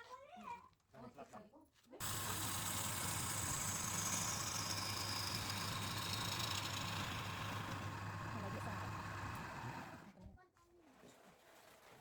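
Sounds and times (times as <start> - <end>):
motor humming: 2.0 - 10.1.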